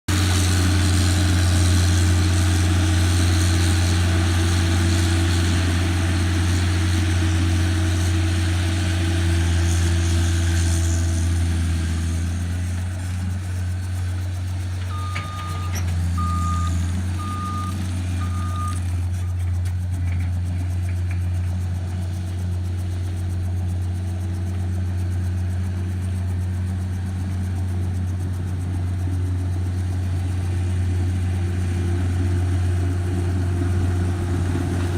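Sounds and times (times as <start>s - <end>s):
skid steer engine running: 0.1s - 34.9s
reverse alarm beeps: 14.9s - 18.8s.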